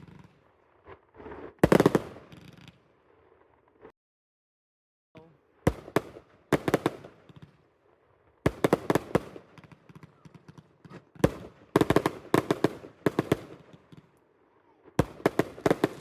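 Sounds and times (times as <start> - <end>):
fireworks bangs and cracks: 0.0 - 3.9, 5.7 - 7.6, 8.4 - 14.2, 14.9 - 16.0.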